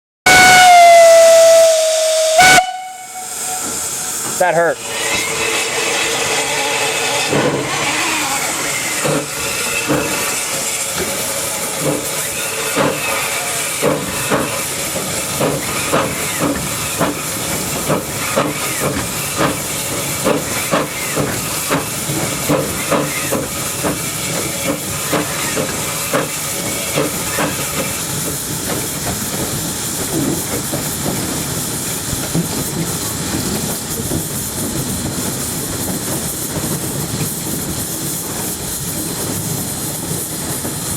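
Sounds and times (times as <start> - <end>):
steam locomotive hissing: 0.3 - 40.9.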